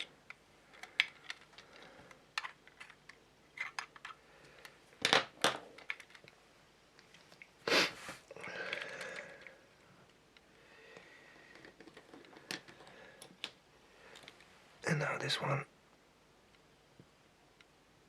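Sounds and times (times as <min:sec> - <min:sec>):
plastic parts clicking: 0:00.0 - 0:06.4, 0:11.5 - 0:13.6.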